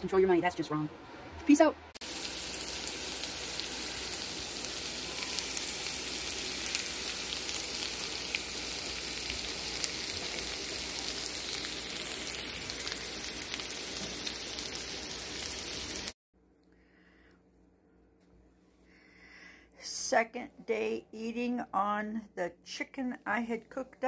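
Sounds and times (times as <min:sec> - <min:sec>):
food sizzling in a skillet: 0:02.0 - 0:16.2.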